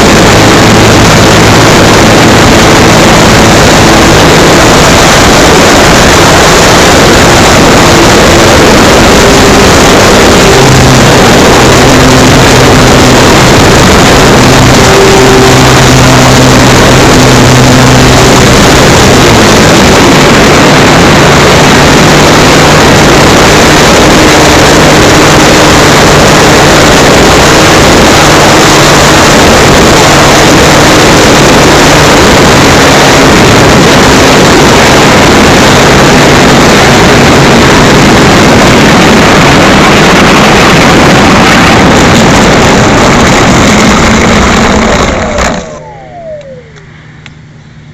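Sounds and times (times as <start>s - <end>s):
loud wind rush: 0.0s - 47.9s
motor and propeller hum: 0.0s - 47.9s.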